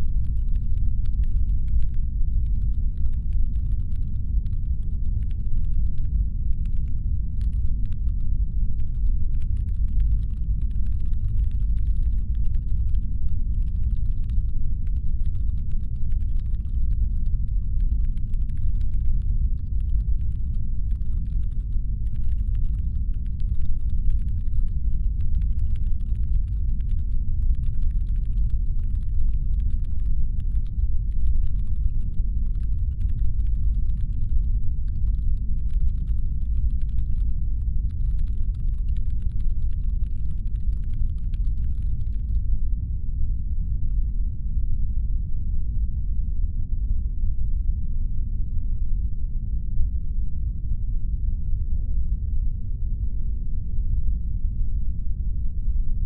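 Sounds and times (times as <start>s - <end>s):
rapid irregular clicking: 0.0s - 42.4s
deep brown-noise rumble: 0.0s - 56.0s.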